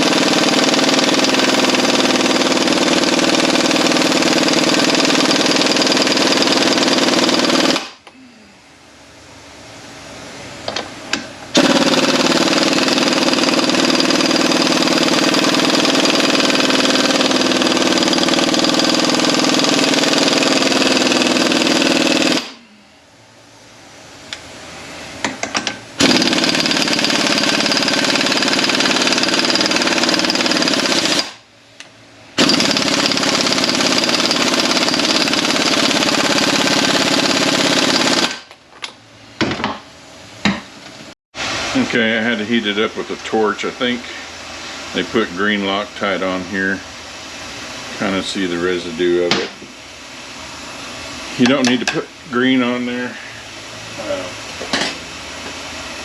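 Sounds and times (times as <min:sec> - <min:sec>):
impact wrench hammering: 0:00.0 - 0:08.1, 0:10.7 - 0:22.6, 0:25.2 - 0:39.8, 0:49.2 - 0:49.7, 0:51.4 - 0:52.1, 0:54.6 - 0:55.0.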